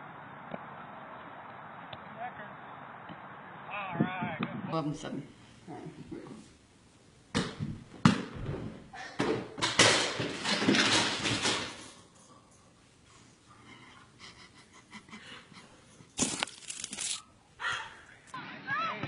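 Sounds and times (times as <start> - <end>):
dense noise: 0.0 - 4.7.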